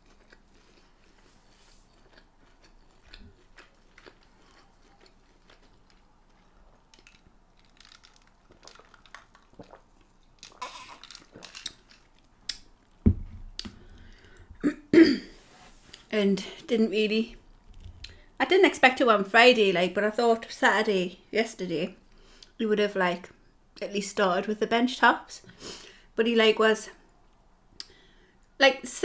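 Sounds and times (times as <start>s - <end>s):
mouth chewing food: 0.0s - 13.0s
glass mug thump on wood: 13.1s - 13.4s.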